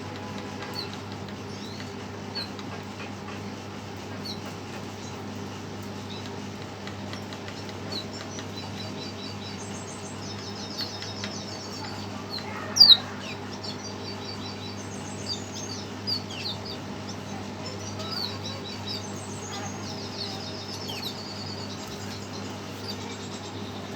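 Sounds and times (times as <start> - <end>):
bird chirping and trilling: 8.0 - 23.9.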